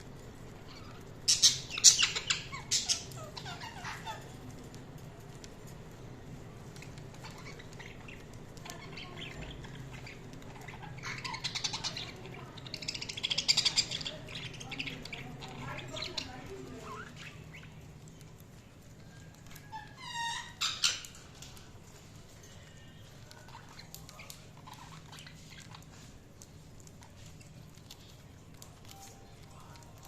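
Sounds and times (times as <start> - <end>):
budgerigars scratchy chatter: 0.6 - 4.5, 6.8 - 17.9, 19.6 - 21.6, 23.3 - 26.2.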